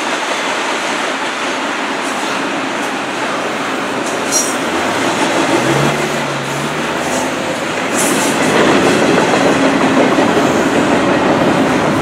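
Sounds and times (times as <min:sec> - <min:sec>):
steel wheels on rail: 0:00.0 - 0:12.0.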